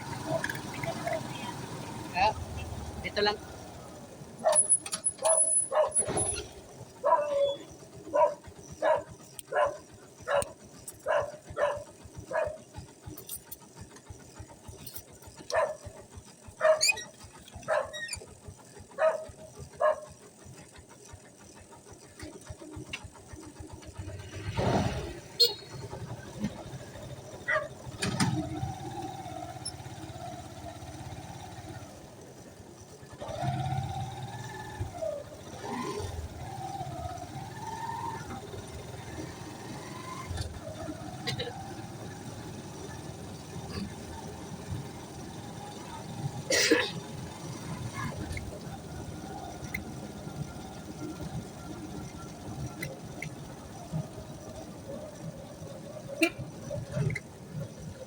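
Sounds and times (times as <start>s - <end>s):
animal barking: 4.4s - 6.2s, 7.0s - 12.7s, 15.5s - 15.9s, 16.6s - 18.2s, 19.0s - 20.2s, 27.5s - 27.8s.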